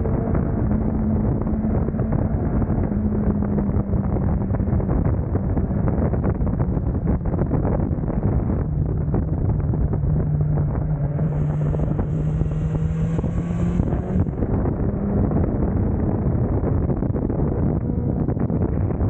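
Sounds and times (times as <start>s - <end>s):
motorcycle engine drone: 0.0s - 19.0s
wind rush over microphone: 0.0s - 19.0s.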